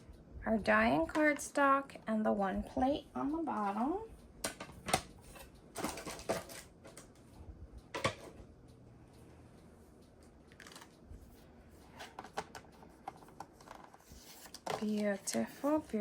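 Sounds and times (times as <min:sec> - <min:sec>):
cardstock and plastic plates rustling: 0:05.8 - 0:07.0.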